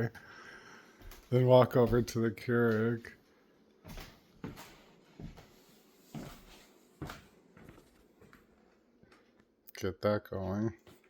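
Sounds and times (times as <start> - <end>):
footsteps: 0.9 - 3.2, 3.8 - 9.3, 10.8 - 11.0.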